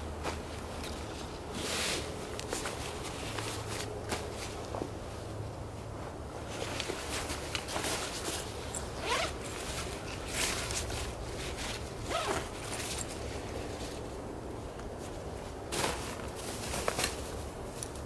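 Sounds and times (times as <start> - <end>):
zipper being pulled: 9.0 - 9.5, 12.1 - 12.6.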